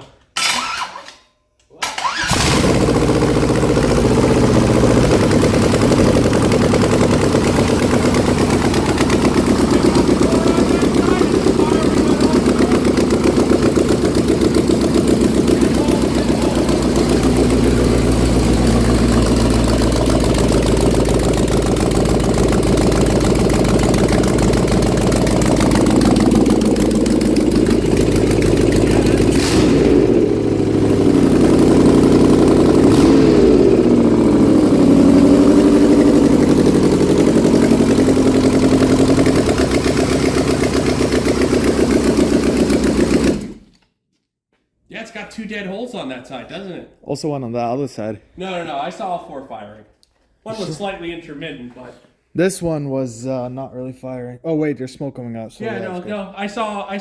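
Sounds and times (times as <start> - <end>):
misfiring engine revving: 2.0 - 43.7.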